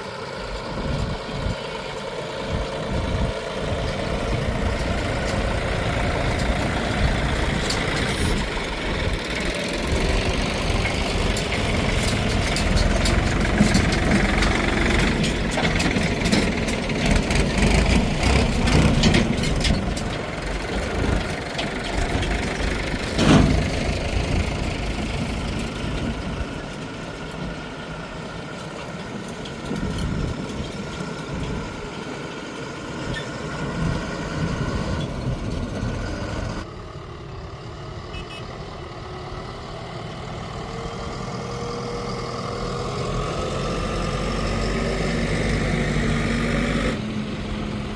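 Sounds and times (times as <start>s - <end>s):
heavy diesel machinery running: 0.0s - 47.9s
metal clanks: 3.8s - 8.6s, 10.1s - 27.5s.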